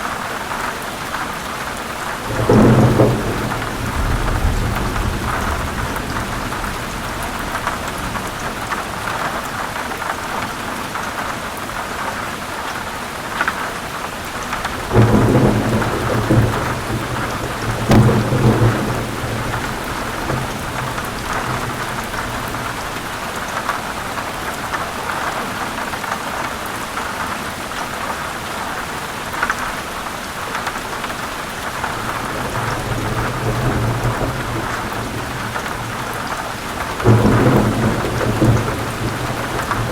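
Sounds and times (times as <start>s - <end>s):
heavy rain on leaves: 0.0s - 39.9s
thunder rumbling: 2.2s - 9.9s, 14.4s - 23.2s, 31.8s - 39.9s.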